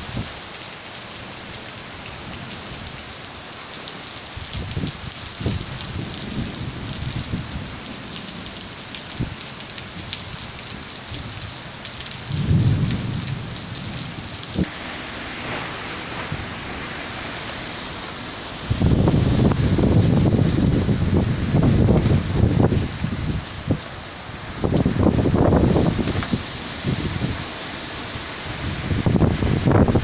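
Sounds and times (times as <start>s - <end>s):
heavy rain hissing: 0.0s - 30.0s
raindrops pattering: 0.0s - 30.0s
low rumbles: 12.3s - 27.5s.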